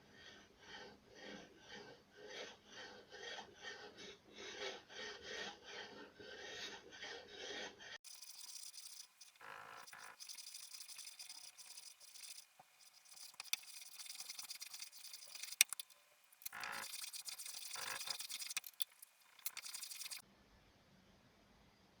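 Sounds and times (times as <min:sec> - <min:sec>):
scraping and rubbing on wood: 0:04.5 - 0:20.2.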